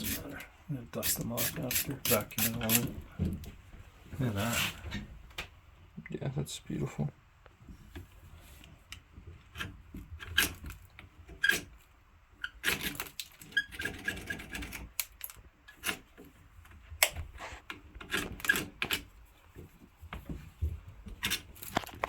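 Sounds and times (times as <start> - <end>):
scraping battery terminals: 21.2 - 22.0.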